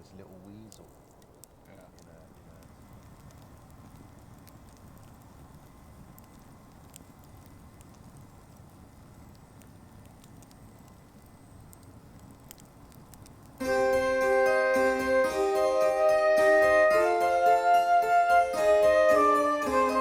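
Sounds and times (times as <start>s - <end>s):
low steady rumble: 0.0s - 20.0s
sharp crackles: 0.0s - 20.0s.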